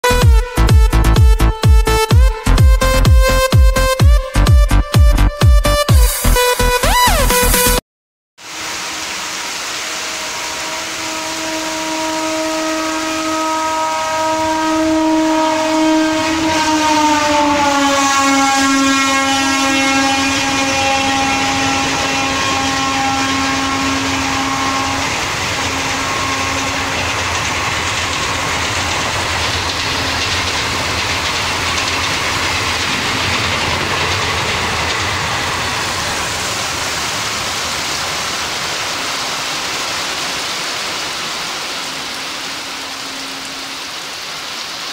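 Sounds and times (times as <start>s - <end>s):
locomotive horn: 0.0s - 7.8s, 8.8s - 38.5s, 41.2s - 44.6s
heavy rain: 8.4s - 44.9s
train coaches rushing past: 8.5s - 44.9s.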